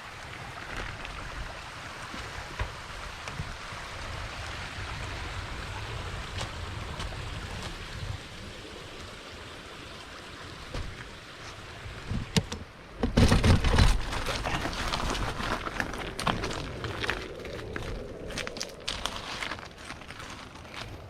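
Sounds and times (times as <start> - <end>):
creek water rushing: 0.0 - 20.6
low rumble: 14.3 - 20.2.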